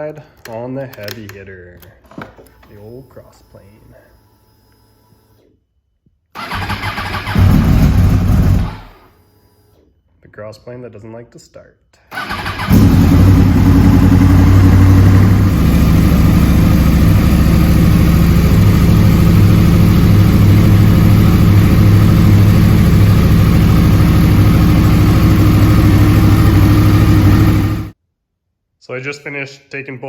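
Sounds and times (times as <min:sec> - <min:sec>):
motorcycle engine idling: 0:06.6 - 0:08.9, 0:12.2 - 0:28.0.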